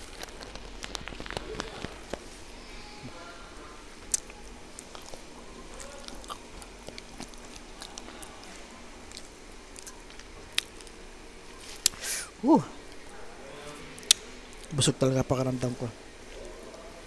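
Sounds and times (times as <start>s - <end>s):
person chewing food: 0.0s - 2.4s, 4.0s - 12.1s.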